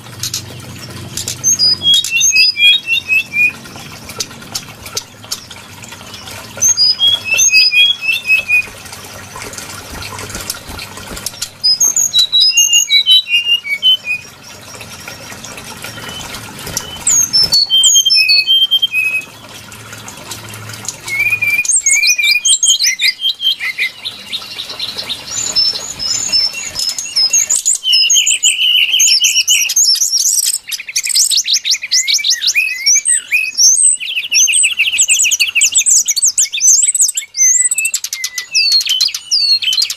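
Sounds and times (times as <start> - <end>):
bird whistling and trilling song: 0.2 - 19.5, 20.9 - 39.9.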